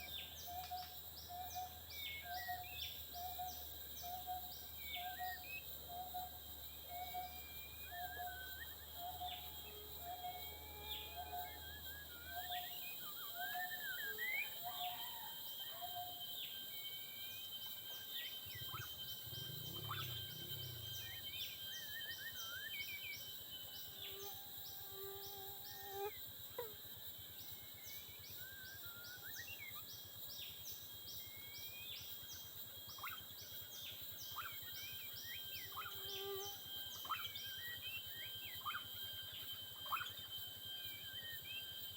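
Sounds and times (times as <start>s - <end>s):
forest insects droning: 0.0s - 41.9s
birds chirping and whistling: 17.7s - 23.3s.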